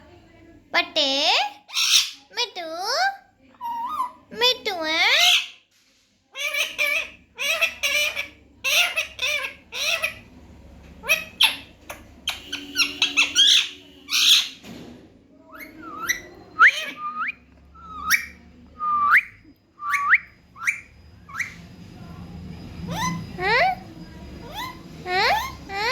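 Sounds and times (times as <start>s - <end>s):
parrot squawking: 1.7s - 2.3s, 3.6s - 5.6s, 6.4s - 10.4s, 11.0s - 14.6s, 15.5s - 18.4s, 19.2s - 21.6s, 22.8s - 25.9s
parrot whistled calls: 11.0s - 14.6s, 15.5s - 21.7s, 22.7s - 25.9s.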